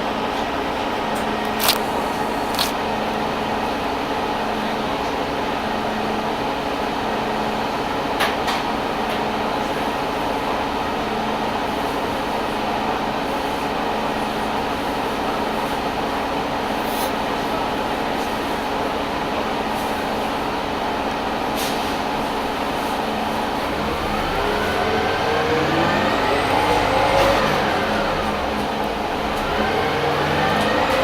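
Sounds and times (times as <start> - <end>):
bus engine humming: 0.0 - 7.8, 18.8 - 31.0.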